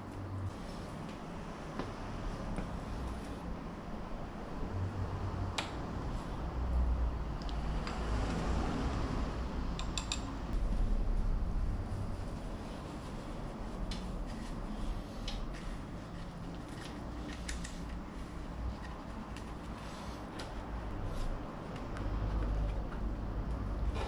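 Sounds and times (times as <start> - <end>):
low rumble: 10.5 - 13.8.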